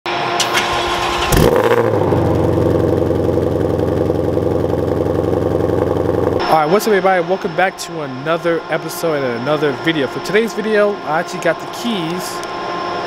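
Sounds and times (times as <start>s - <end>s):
car engine starting and idling: 0.1s - 6.5s.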